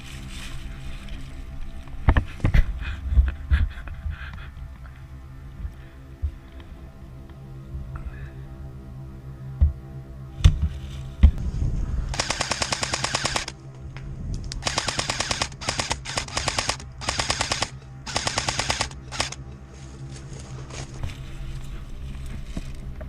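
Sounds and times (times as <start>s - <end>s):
airsoft rifle bursts of clicking: 12.2s - 13.6s, 14.6s - 19.4s.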